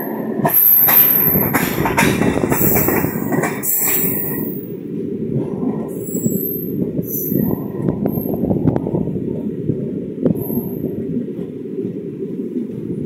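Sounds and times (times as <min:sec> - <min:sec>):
wheels rumbling on rails: 0:00.0 - 0:13.0
clicks over rail joints: 0:00.2 - 0:04.6.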